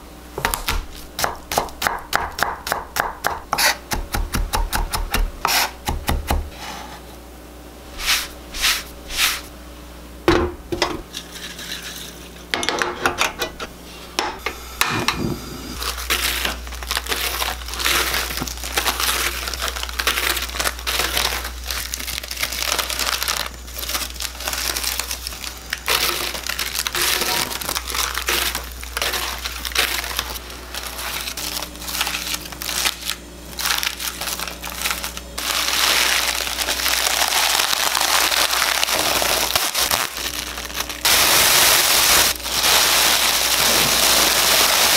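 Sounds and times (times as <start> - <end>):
steady low hum: 0.0 - 41.3
seaweed sheets crinkling: 15.8 - 44.9.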